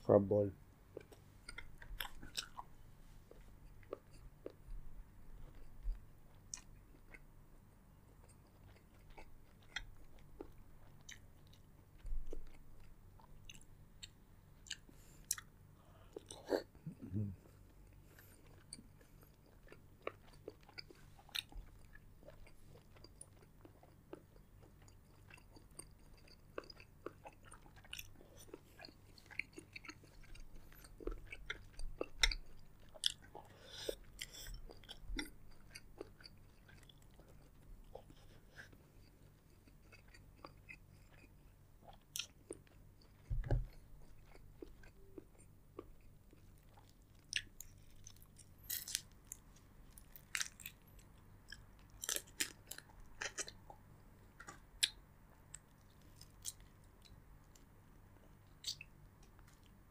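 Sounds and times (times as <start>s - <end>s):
chewing and biting seafood: 1.0s - 2.7s, 17.9s - 53.8s.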